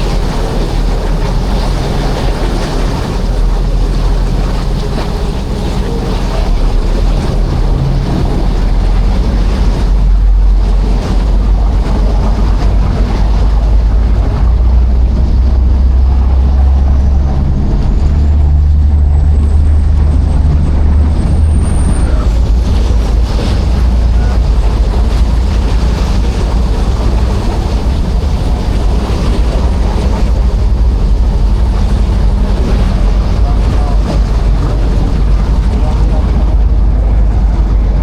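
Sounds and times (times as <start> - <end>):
sea water washing: 0.0 - 38.0
ship engine rumble: 0.0 - 38.0
wind buffeting microphone: 0.0 - 38.0.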